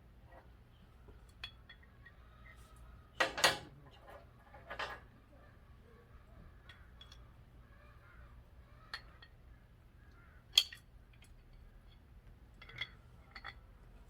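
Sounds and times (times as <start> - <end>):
low steady hum: 0.0 - 14.0
metal tools clinking: 11.5 - 13.7.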